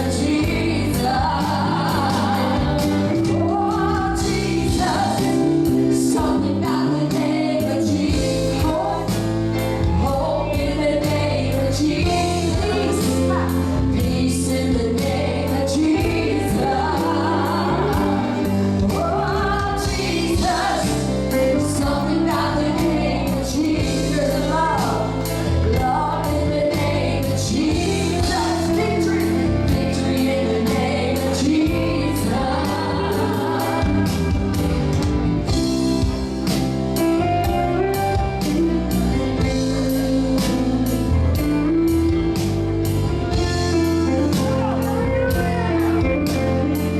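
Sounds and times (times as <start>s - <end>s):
choir singing: 0.0s - 9.2s, 9.8s - 35.6s
band with steady beat: 15.9s - 46.9s.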